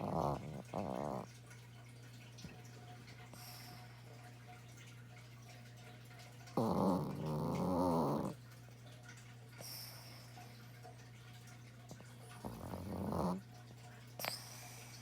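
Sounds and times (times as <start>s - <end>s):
dog snoring: 0.0s - 1.3s, 6.6s - 8.4s, 12.4s - 13.5s.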